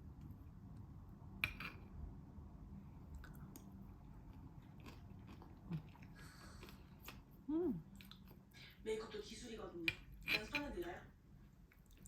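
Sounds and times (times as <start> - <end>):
person eating with crunch: 3.0 - 8.5.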